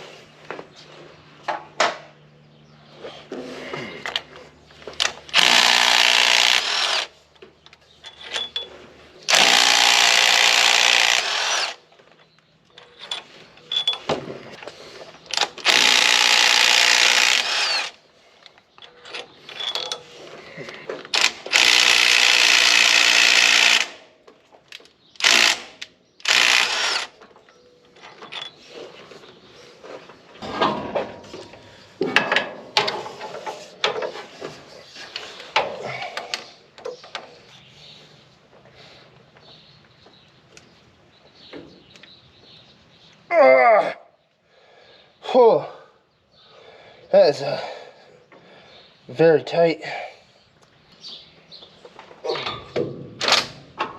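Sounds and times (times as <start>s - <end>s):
impact wrench hammering: 5.3s - 6.8s
tools clanking: 7.5s - 9.9s, 12.1s - 15.8s, 18.5s - 21.6s, 27.2s - 29.0s, 30.4s - 37.4s.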